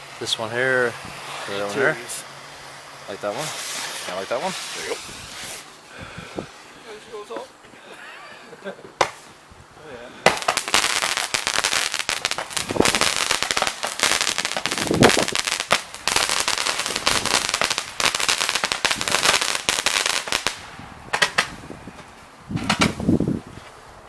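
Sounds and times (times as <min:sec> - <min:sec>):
fireworks crackling: 0:00.0 - 0:23.9
scattered firework pops: 0:08.9 - 0:09.3, 0:10.2 - 0:23.1.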